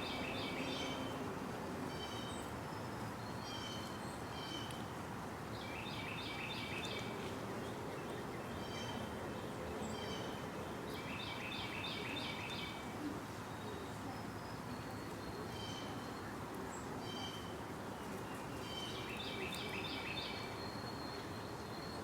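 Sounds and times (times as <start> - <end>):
songbird singing: 0.0 - 1.2, 5.5 - 13.0, 13.6 - 22.0.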